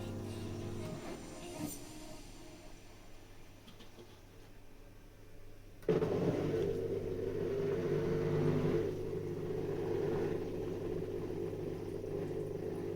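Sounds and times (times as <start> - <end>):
dishwasher pump motor humming: 5.9 - 12.9.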